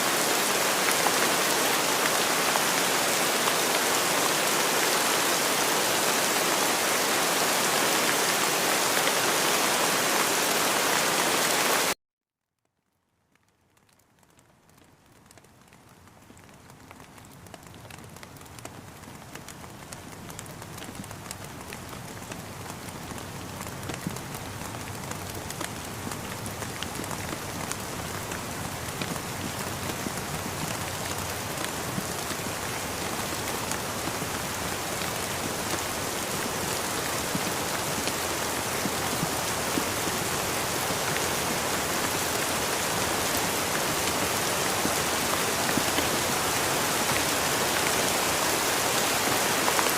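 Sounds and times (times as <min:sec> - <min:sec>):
rain falling: 0:00.0 - 0:12.0, 0:13.1 - 0:49.9
small raindrops tapping: 0:12.6 - 0:49.9.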